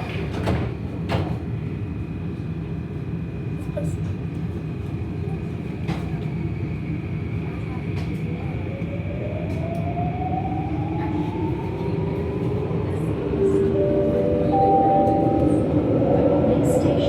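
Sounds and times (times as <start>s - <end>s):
train car rumble: 10.9s - 17.0s
steady tones: 13.4s - 16.6s.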